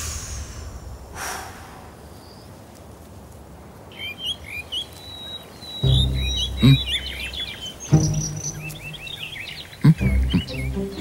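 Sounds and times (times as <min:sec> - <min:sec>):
brief hiss: 0:00.0 - 0:02.2
songbirds chirping: 0:01.5 - 0:11.0.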